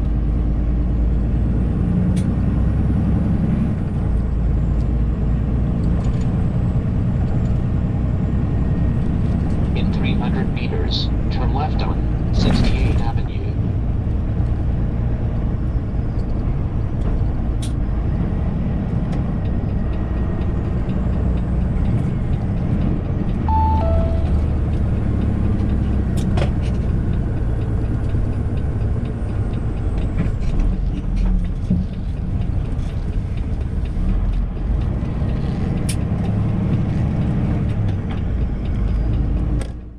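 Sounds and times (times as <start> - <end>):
engine and road drone: 0.0 - 39.9
two-note falling chime: 23.5 - 24.9.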